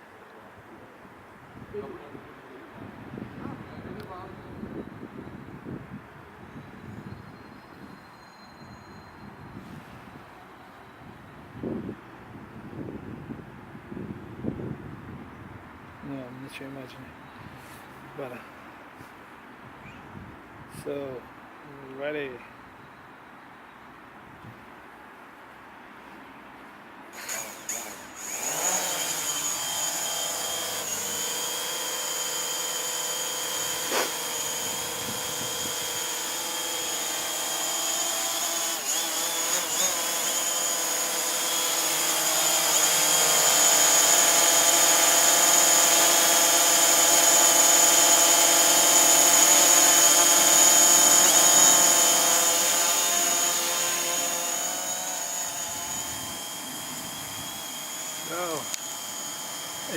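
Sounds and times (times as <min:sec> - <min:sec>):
drone motors whining: 0:27.2 - 0:59.9.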